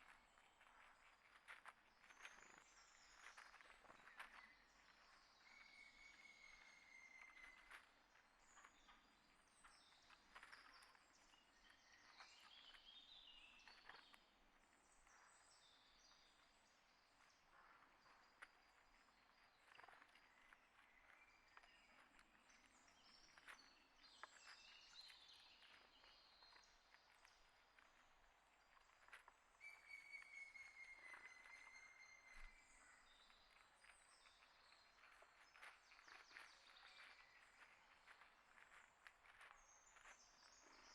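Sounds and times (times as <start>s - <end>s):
small birds chirping: 15.1s - 28.0s, 28.7s - 40.9s.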